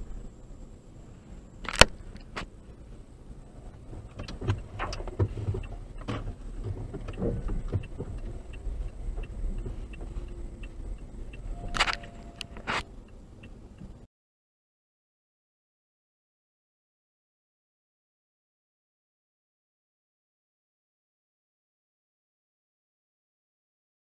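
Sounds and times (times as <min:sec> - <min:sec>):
car road rumble: 0:00.0 - 0:14.1
knocks and clicks: 0:03.9 - 0:12.9.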